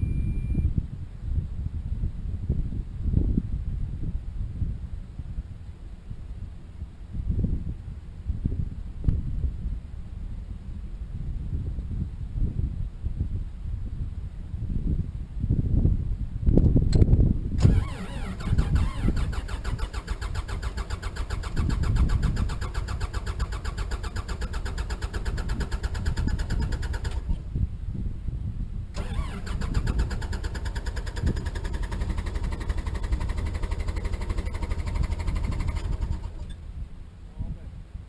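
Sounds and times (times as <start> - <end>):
diesel engine starting and idling: 17.6 - 27.4, 29.0 - 36.6.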